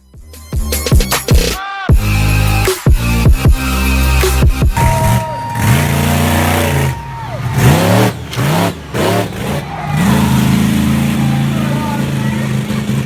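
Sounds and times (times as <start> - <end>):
monster truck engine revving: 3.7 - 13.0.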